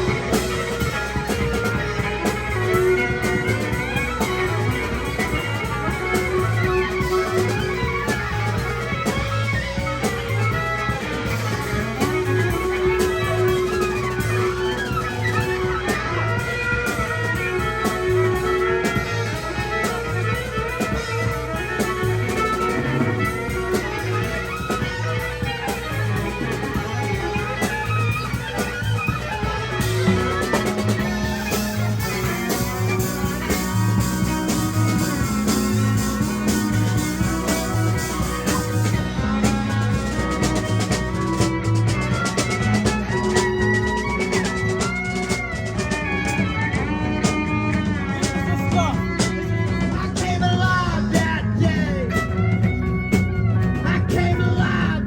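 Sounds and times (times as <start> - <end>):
live band playing: 0.0 - 55.0.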